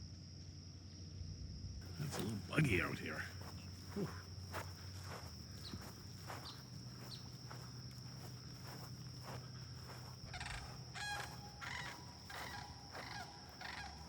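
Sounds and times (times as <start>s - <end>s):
high drone of insects: 0.0s - 14.0s
cranes calling: 9.4s - 14.0s.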